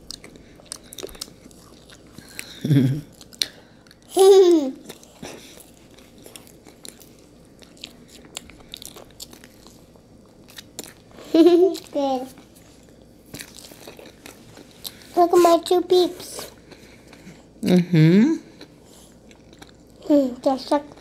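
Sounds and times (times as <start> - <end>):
soft sticky chewing: 0.0 - 4.2, 4.8 - 17.7, 18.4 - 21.0
person humming: 2.4 - 3.1.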